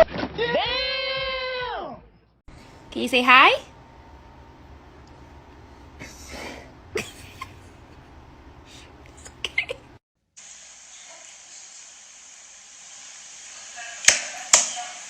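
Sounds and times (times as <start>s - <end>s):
steady hiss: 10.4s - 15.0s.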